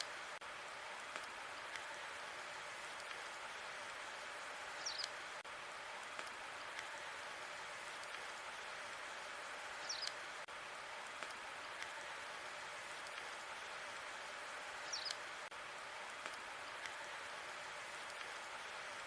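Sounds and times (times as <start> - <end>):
wood fire crackling and popping: 0.0 - 2.0, 5.0 - 8.9, 10.0 - 12.2, 12.8 - 13.5, 16.0 - 17.1.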